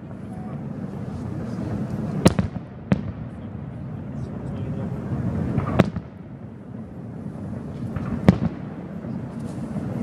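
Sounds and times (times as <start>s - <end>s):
low background noise: 0.0s - 10.0s
distant firework bangs: 2.2s - 3.7s, 5.2s - 6.5s, 7.5s - 10.0s.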